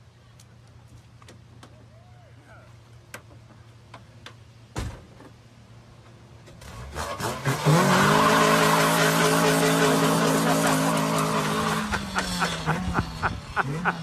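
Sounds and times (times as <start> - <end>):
thump: 4.7 - 5.3
engine revving: 6.6 - 14.0.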